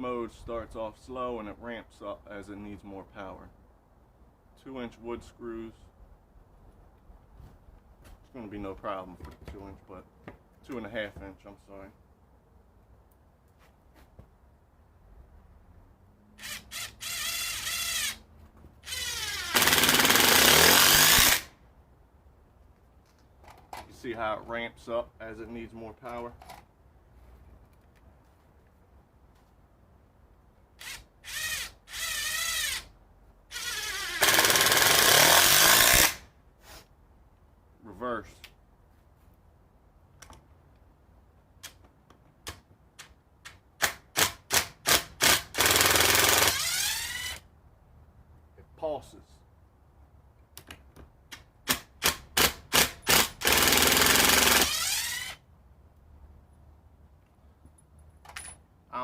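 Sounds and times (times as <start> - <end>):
impact driver spinning down: 18.9 - 21.5.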